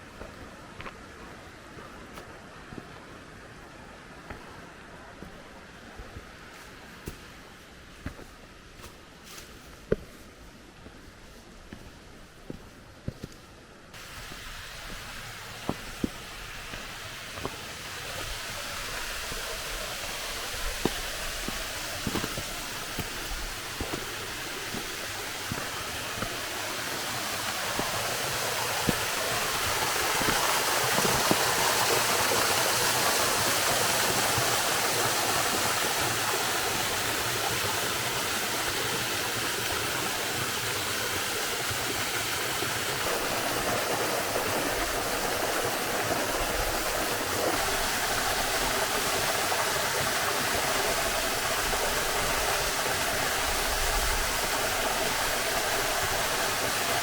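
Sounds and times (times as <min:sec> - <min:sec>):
waterfall rushing: 0:14.0 - 0:57.0.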